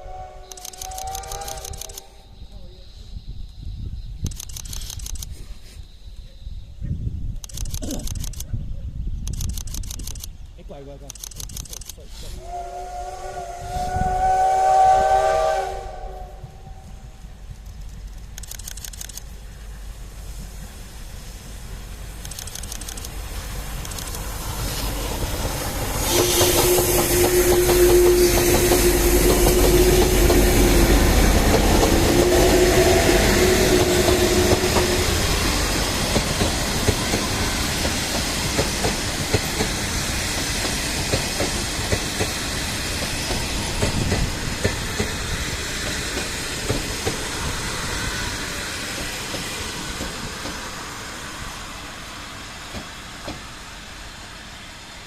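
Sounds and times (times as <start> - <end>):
steam locomotive whistle blasts: 0.0 - 2.3, 12.3 - 17.0, 26.0 - 30.9, 32.0 - 35.4
steam hissing: 12.0 - 17.3, 19.2 - 55.0
train wheels clattering over joints: 23.8 - 47.6.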